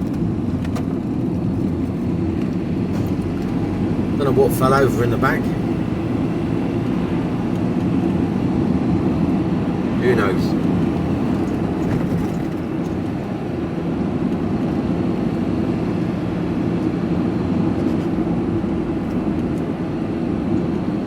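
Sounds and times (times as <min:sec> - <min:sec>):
lorry engine drone: 0:00.0 - 0:21.0
road noise: 0:00.0 - 0:21.0.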